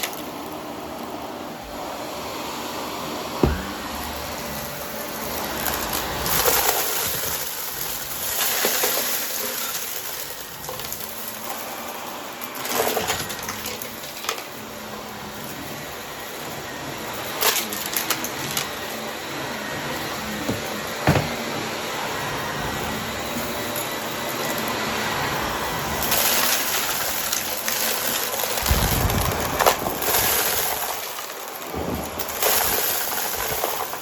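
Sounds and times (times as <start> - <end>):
vacuum cleaner running: 0.0 - 34.0
debris crunching in vacuum: 3.4 - 11.8, 15.4 - 34.0.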